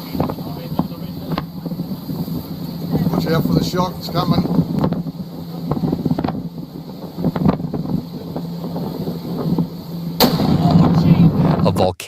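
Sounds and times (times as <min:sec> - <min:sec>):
wind buffeting microphone: 0:00.0 - 0:11.9
low hum: 0:00.0 - 0:12.0
loud boom: 0:10.1 - 0:11.9.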